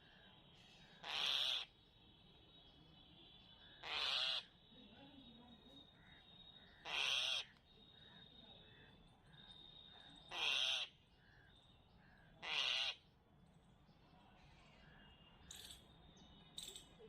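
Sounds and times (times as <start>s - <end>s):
crow cawing: 1.0s - 1.7s, 3.6s - 4.5s, 6.0s - 7.5s, 10.3s - 13.0s.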